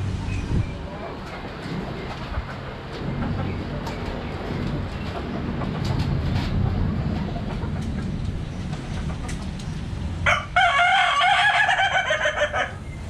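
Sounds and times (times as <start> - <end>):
low background rumble: 0.0 - 13.0
rooster crowing: 10.2 - 12.8.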